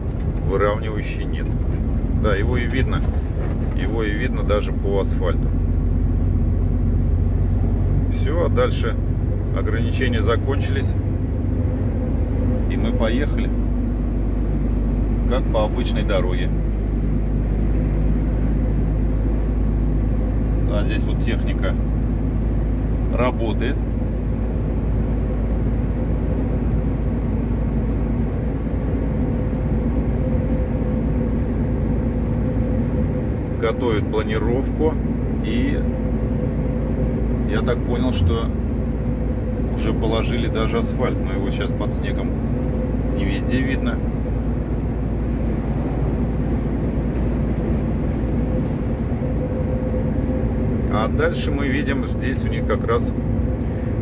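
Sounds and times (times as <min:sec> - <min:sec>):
road noise: 0:00.0 - 0:54.0
truck diesel engine drone: 0:00.0 - 0:54.0
faint high whine: 0:37.2 - 0:42.4.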